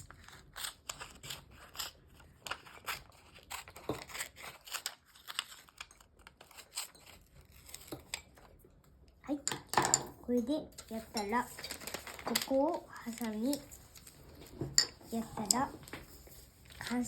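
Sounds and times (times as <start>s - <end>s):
scissors snipping paper: 0.0s - 8.3s.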